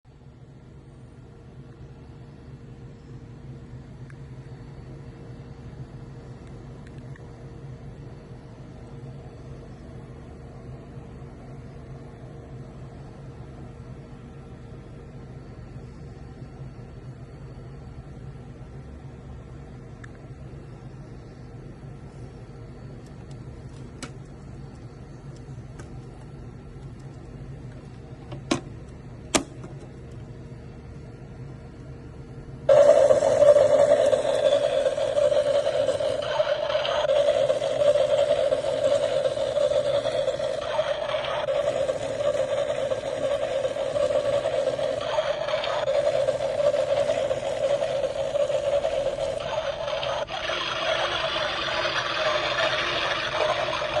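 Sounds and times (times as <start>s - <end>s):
small electric motor humming: 32.7s - 54.0s.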